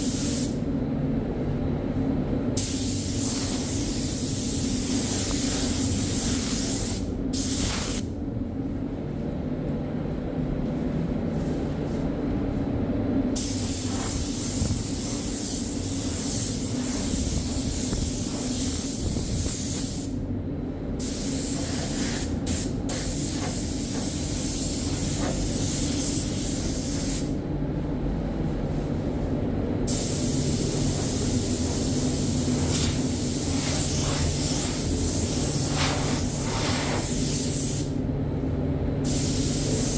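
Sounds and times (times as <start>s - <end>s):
steady low hum: 0.0s - 39.9s
spray gun hissing: 2.6s - 8.0s, 13.4s - 20.1s, 21.0s - 27.3s, 29.9s - 37.9s, 39.0s - 39.9s.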